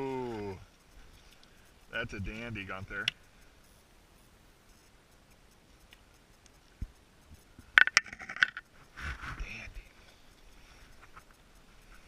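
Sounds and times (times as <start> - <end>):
sharp clicks and taps: 5.1 - 8.8.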